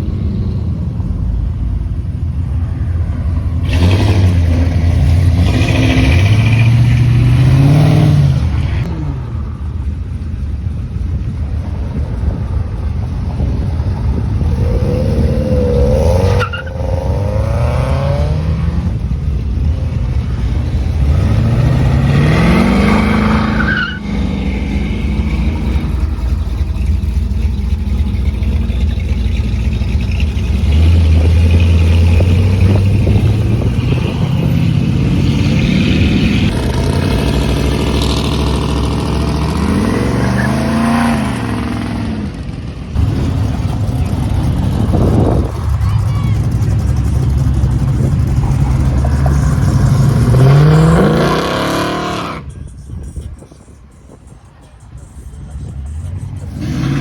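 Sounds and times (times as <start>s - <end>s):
cars accelerating away: 3.5s - 9.8s, 12.8s - 57.0s.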